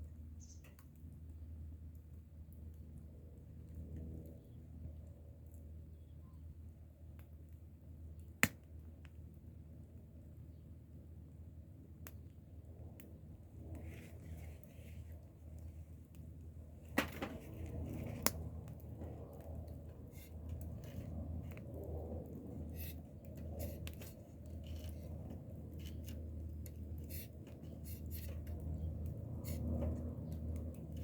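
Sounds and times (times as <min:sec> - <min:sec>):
low fire rumble: 0:00.0 - 0:31.0
wood fire crackling: 0:06.6 - 0:31.0.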